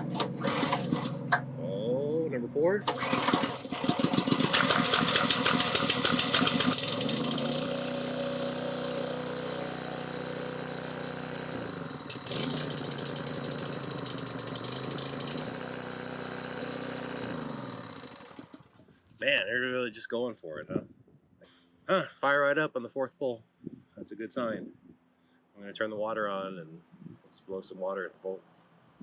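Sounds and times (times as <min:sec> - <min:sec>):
small gas engine running: 0:00.0 - 0:18.8.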